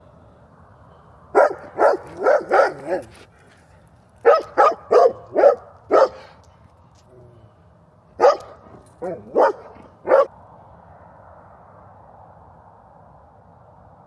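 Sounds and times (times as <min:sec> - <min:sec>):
dog barking: 0:01.4 - 0:03.1, 0:04.2 - 0:06.4, 0:08.2 - 0:10.3.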